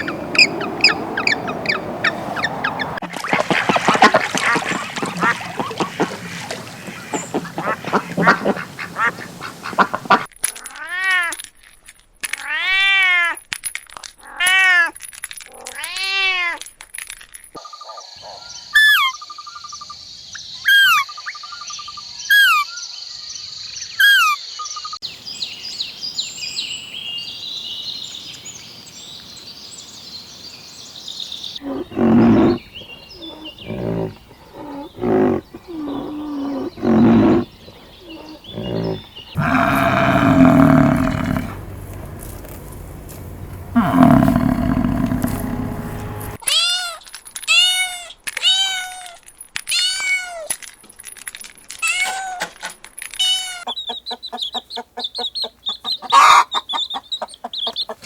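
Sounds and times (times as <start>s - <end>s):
bird chirping: 0.0s - 3.0s, 3.8s - 10.3s, 24.7s - 46.4s
loud low animal calls: 0.0s - 10.3s, 31.6s - 46.4s.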